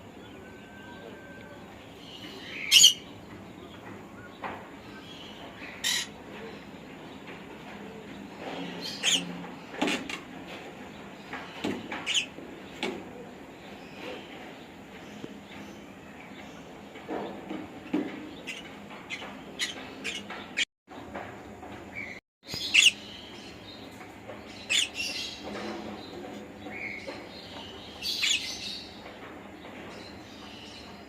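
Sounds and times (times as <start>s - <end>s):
parrot chirping and squawking: 2.6s - 3.0s, 5.8s - 6.2s, 8.9s - 9.3s, 12.0s - 12.3s, 22.6s - 23.0s, 24.7s - 25.0s.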